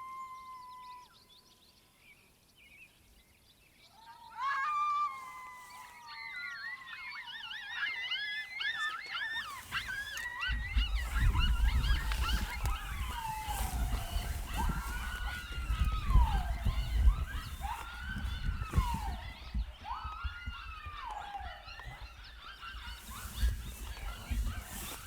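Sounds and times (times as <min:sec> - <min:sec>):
coyotes howling: 0:04.0 - 0:25.0
coyotes yipping: 0:04.0 - 0:25.0
low rumbling microphone noise: 0:09.5 - 0:25.0.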